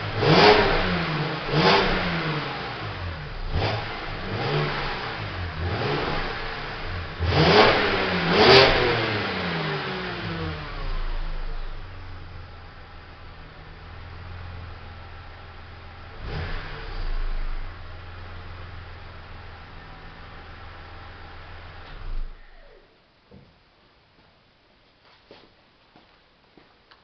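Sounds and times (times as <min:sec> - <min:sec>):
car engine idling: 0:00.0 - 0:22.8
car engine revving: 0:00.0 - 0:22.8.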